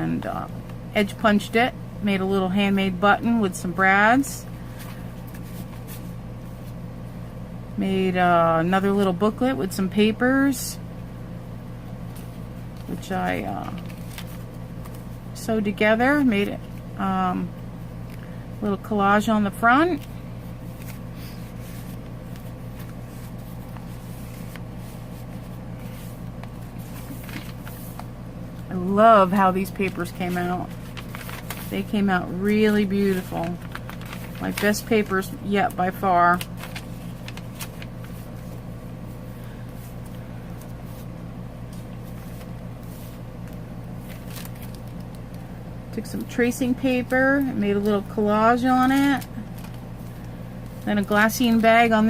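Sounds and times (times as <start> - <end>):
low background hum: 0.0 - 52.0
paper pages being handled: 4.7 - 6.8, 12.1 - 15.2, 19.9 - 28.1, 29.4 - 41.1, 41.7 - 45.4, 47.0 - 51.8
paper rustling and tapping: 26.4 - 28.1, 29.8 - 31.8, 33.1 - 34.8, 36.3 - 38.2.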